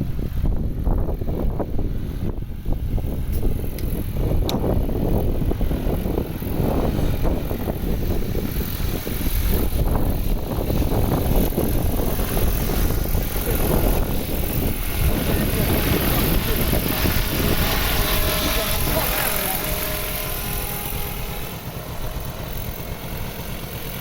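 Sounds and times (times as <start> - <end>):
helicopter rotors and engine: 0.0 - 24.0.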